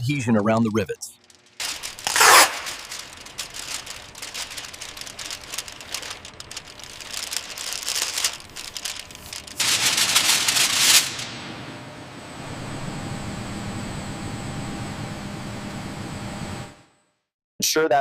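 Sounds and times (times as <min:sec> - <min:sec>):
thin foil crackling: 0:01.1 - 0:11.6.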